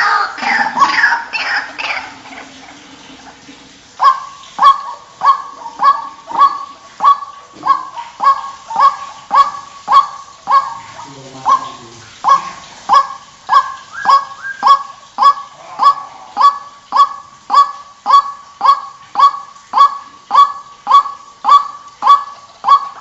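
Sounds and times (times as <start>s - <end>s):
waterhen honking call: 0.0s - 23.0s.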